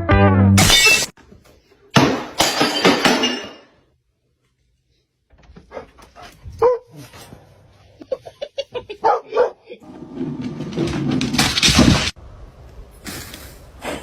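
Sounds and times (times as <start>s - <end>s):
dog barking: 6.6s - 7.0s, 9.0s - 9.8s.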